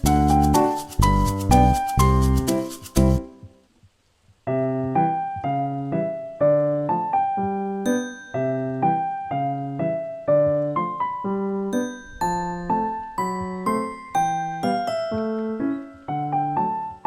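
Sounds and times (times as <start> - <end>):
gentle keyboard melody: 0.0 - 3.5, 4.5 - 17.0
music piece ending: 12.0 - 15.8.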